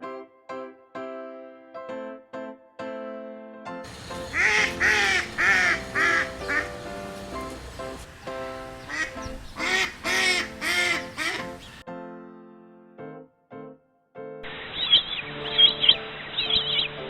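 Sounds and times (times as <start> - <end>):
piano music: 0.0 - 17.0
duck quacking: 3.9 - 11.8.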